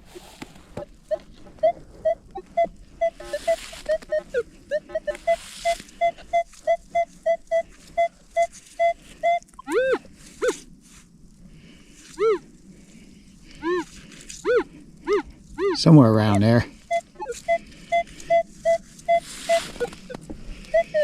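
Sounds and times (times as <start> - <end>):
rustling: 0.0 - 15.7, 16.5 - 21.0
metal detector short beeps: 8.0 - 10.6.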